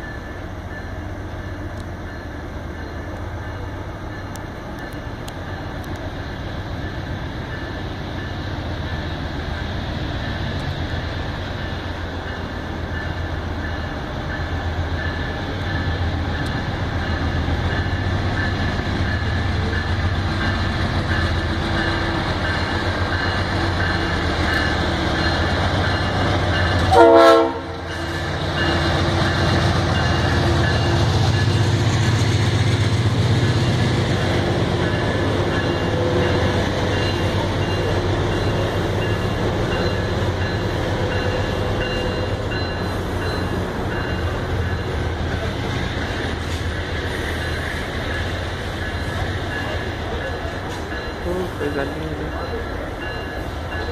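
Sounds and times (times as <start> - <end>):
train rumbling: 0.0 - 53.9
train wheel clatter: 0.0 - 53.9
train horn blast: 26.8 - 27.9.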